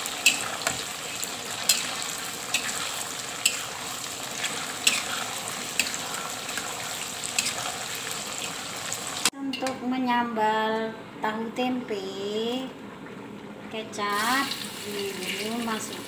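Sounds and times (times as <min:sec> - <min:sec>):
tofu sizzling in hot oil: 0:00.0 - 0:09.3, 0:14.1 - 0:16.0.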